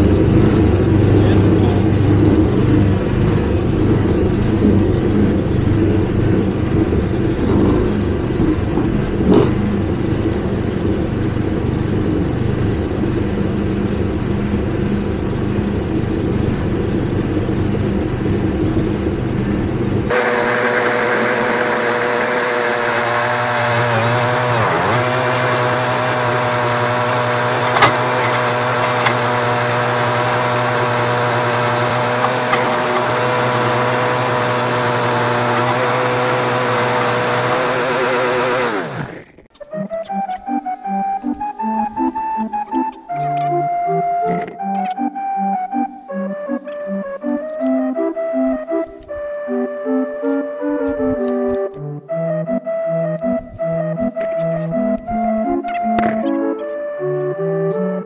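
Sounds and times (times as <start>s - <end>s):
small engine running rough: 0.0s - 39.5s
smoother higher engine sound: 0.0s - 39.5s.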